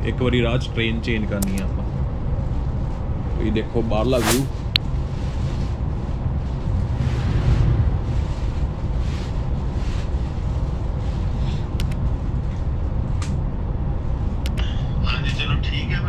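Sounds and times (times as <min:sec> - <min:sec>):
train rumble inside carriage: 0:00.0 - 0:16.0
light clicks: 0:01.4 - 0:01.7, 0:11.8 - 0:12.0.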